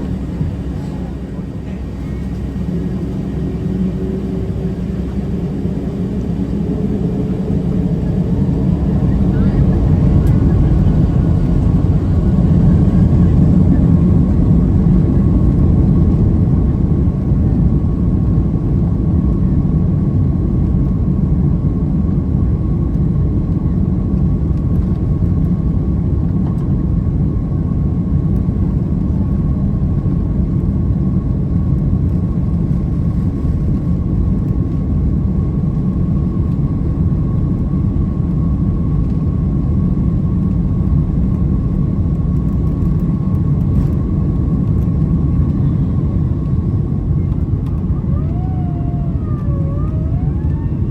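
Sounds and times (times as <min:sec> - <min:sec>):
faint steady whine: 0:00.0 - 0:15.6
jet engine and airflow rumble: 0:00.0 - 0:50.9.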